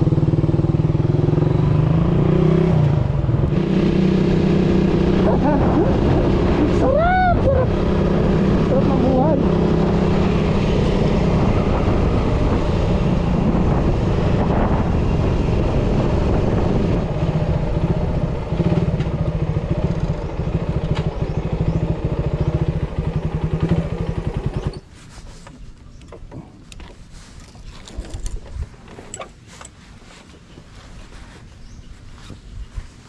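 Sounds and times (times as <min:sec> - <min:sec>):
motorcycle engine running: 0:00.0 - 0:24.9.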